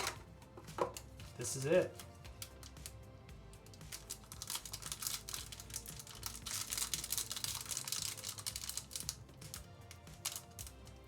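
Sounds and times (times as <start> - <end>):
plastic wrapping crinkling and tearing: 3.6 - 10.8.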